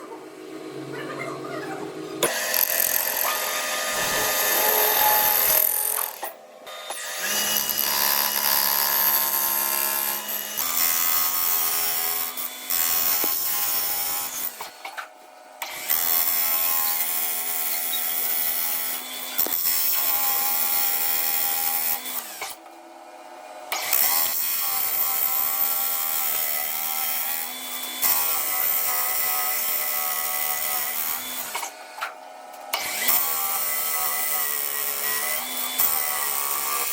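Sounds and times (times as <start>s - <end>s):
machine tool cutting metal: 2.2s - 14.8s, 32.7s - 36.9s.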